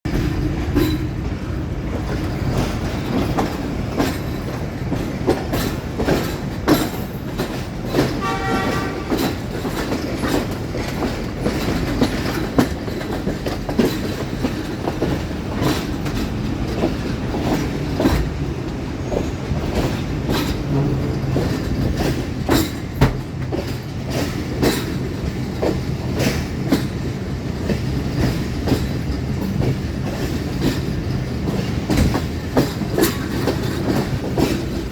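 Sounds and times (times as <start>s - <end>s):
train rumble: 0.0s - 34.9s
train wheels clicking on rail joints: 0.1s - 34.9s
train horn: 8.1s - 9.4s.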